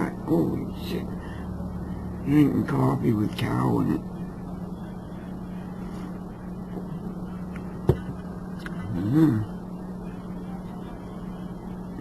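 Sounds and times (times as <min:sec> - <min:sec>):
low background hum: 0:00.0 - 0:12.0
man humming: 0:08.8 - 0:09.5.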